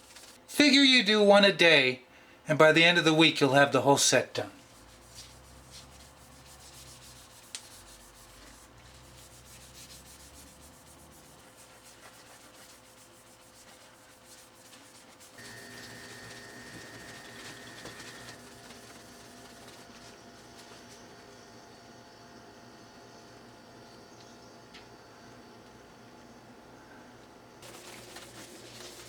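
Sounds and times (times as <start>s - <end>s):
scratchy abrasive rubbing: 4.6s - 19.8s.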